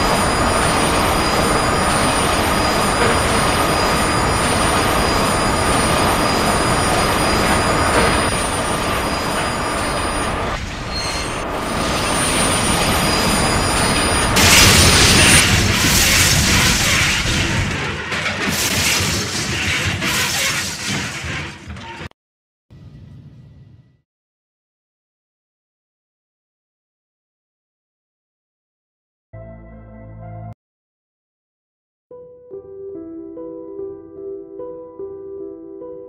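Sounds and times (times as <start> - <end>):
train derailment crash: 0.0 - 22.1
train wheels squealing on rails: 0.0 - 22.1.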